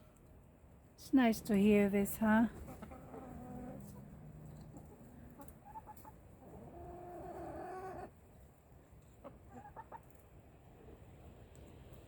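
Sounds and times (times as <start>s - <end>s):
chickens clucking: 2.6s - 8.2s, 9.0s - 10.3s.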